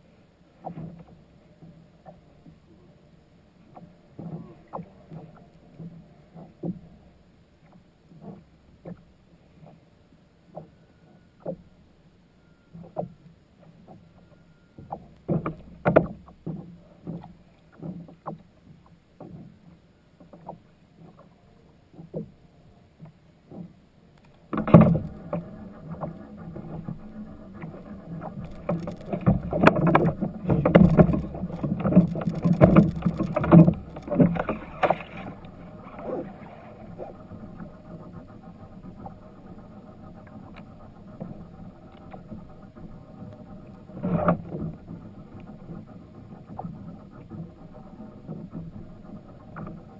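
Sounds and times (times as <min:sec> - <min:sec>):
steady hum: 0:18.5 - 0:49.9.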